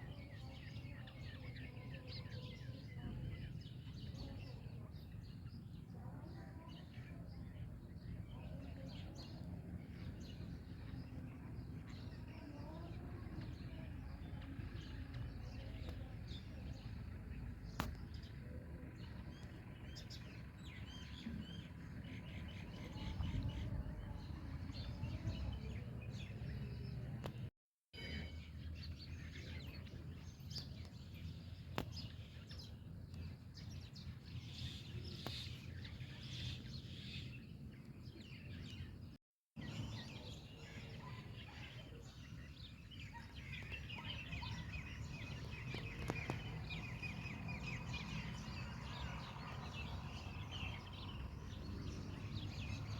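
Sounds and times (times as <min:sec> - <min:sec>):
outdoor background noise: 0:00.0 - 0:52.9
bird chirping and singing: 0:28.0 - 0:52.9.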